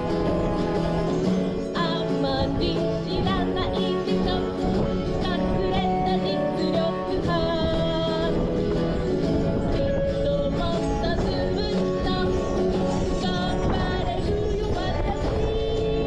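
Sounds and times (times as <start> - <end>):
acoustic guitar: 0.0 - 16.0
person singing with vibrato: 0.0 - 16.0
wind buffeting microphone: 0.0 - 16.0.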